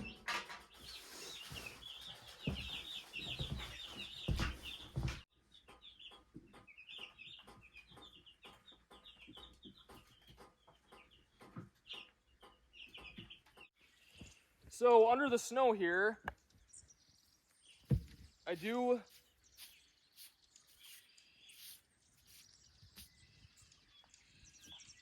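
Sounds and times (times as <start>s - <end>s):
baby chicks peeping: 0.0s - 14.4s, 16.6s - 25.0s
background noise: 0.0s - 25.0s
dull thumps: 17.9s - 18.3s.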